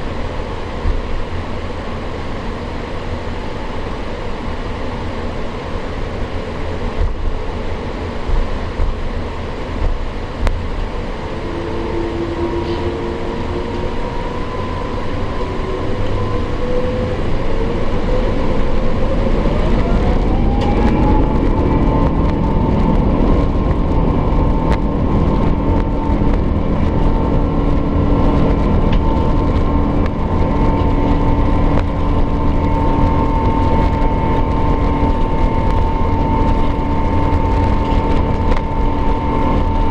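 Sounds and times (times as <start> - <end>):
jet engines spooling up: 0.0 - 39.9
low rumble of takeoff roll: 0.0 - 39.9.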